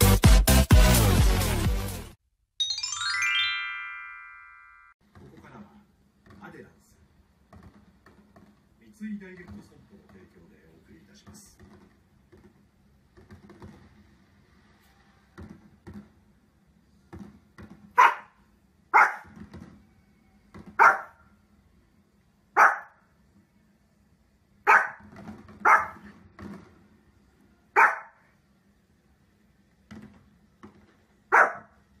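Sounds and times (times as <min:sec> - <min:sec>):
dog barking: 0:18.0 - 0:19.4, 0:20.8 - 0:21.2, 0:22.6 - 0:23.0, 0:24.6 - 0:25.0, 0:25.6 - 0:26.1, 0:27.8 - 0:28.3, 0:31.3 - 0:31.8.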